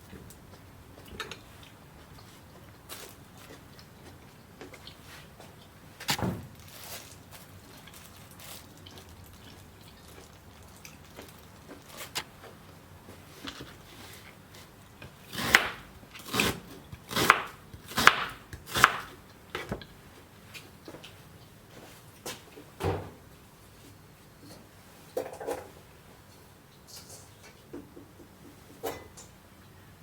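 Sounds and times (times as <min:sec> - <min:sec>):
knife chopping on cutting board: 0:15.3 - 0:19.9.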